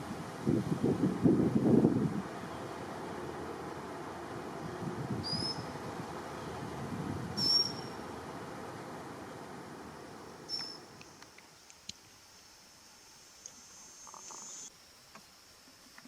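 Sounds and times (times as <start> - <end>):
small bird high-pitched calls: 5.2 - 5.8, 7.4 - 8.0, 10.5 - 10.8.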